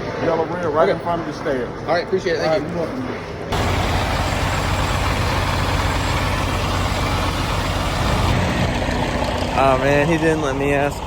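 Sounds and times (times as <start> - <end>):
diesel truck engine running: 3.5 - 11.0.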